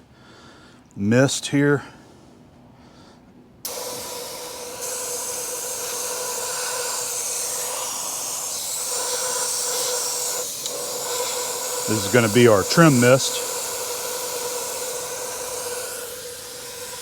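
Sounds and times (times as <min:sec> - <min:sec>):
compressed air spraying hiss: 0:03.7 - 0:17.0.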